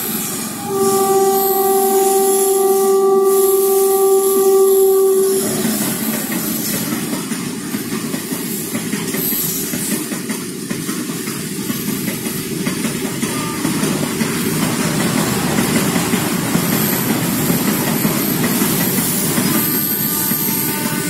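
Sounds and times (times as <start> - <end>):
freight train wheels rumbling: 0.0 - 21.0
locomotive horn: 0.4 - 7.4, 13.2 - 14.0, 20.2 - 21.0.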